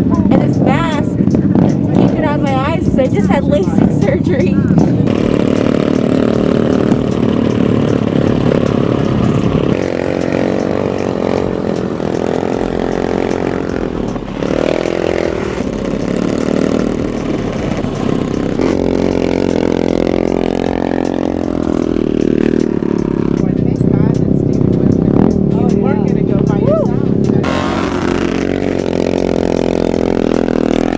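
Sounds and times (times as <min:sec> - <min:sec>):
vehicle engine revving: 0:00.0 - 0:30.9.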